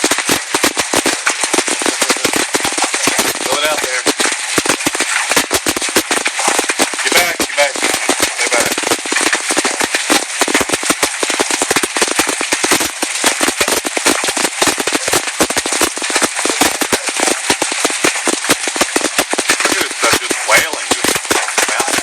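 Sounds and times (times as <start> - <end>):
hailstones striking hard surfaces: 0.0 - 22.0
steady hiss: 0.0 - 22.0.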